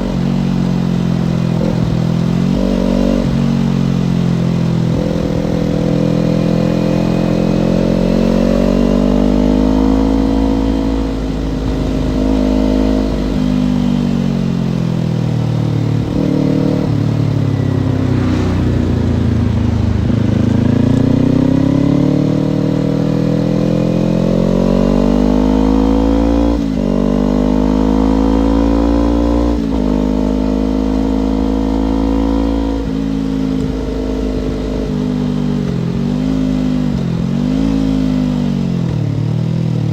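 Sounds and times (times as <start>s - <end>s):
low wind rumble: 0.0s - 24.0s
motorcycle engine under way: 0.0s - 39.9s.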